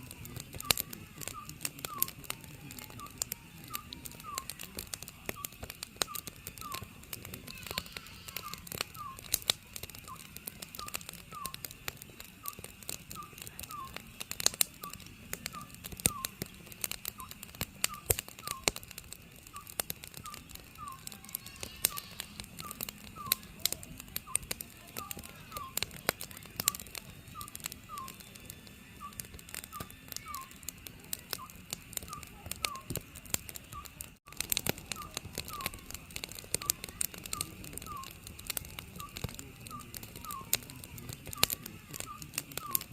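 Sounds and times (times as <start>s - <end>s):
owl whistled calls: 0.0s - 2.2s, 2.8s - 9.4s, 10.0s - 11.7s, 12.4s - 14.0s, 14.8s - 16.5s, 17.2s - 18.7s, 19.5s - 23.6s, 24.2s - 25.8s, 26.6s - 28.3s, 28.9s - 30.6s, 31.4s - 32.9s, 34.9s - 38.2s, 39.0s - 40.6s, 41.3s - 42.9s
wood fire crackling: 0.0s - 42.9s.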